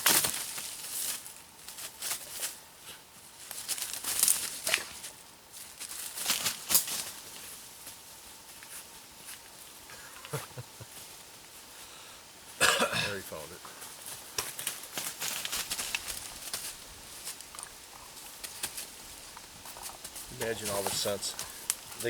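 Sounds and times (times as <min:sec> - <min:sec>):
footsteps through dry leaves: 0:00.0 - 0:02.6, 0:03.4 - 0:09.4, 0:13.2 - 0:22.0.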